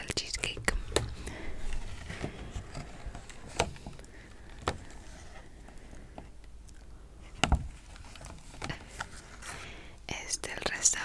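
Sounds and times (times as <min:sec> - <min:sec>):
container being handled: 0:00.4 - 0:06.4.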